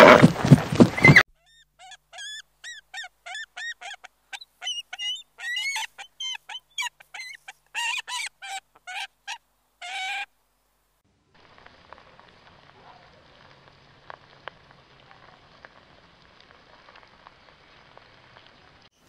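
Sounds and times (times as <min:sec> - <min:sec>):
eagle calling high piping notes: 0:01.0 - 0:10.3.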